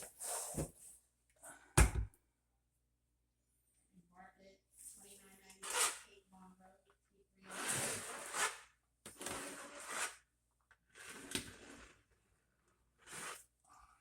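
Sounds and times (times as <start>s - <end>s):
adhesive spreader scraping floor: 5.6s - 6.0s, 7.5s - 10.2s, 10.9s - 12.2s, 13.0s - 13.5s.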